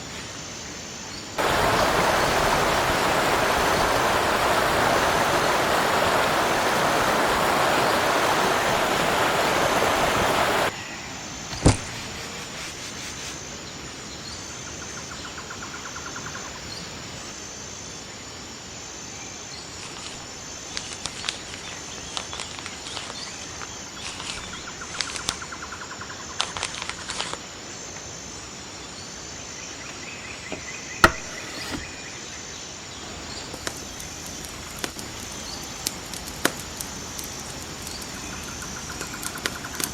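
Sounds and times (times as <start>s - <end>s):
insect trills: 0.0s - 39.9s
rushing stream water: 1.4s - 10.8s, 31.0s - 32.0s, 33.0s - 39.9s
sharp knocks: 31.0s - 31.8s.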